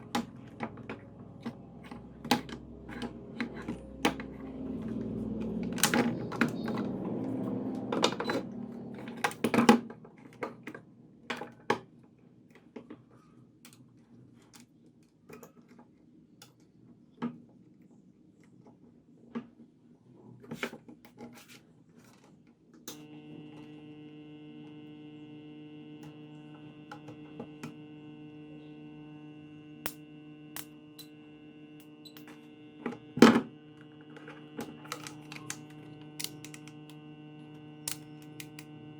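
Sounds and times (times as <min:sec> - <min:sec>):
transformer humming: 0:00.0 - 0:09.8, 0:23.0 - 0:38.9.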